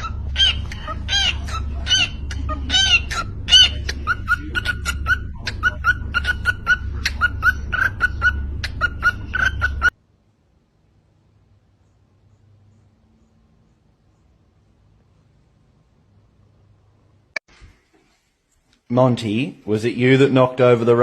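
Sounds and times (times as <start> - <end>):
chickens clucking: 0.0 - 9.9
low steady rumble: 0.0 - 17.4.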